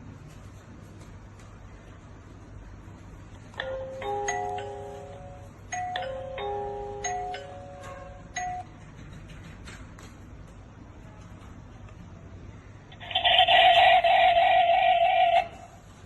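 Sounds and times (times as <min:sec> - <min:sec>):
electronic doorbell chime melody: 0:03.6 - 0:08.7.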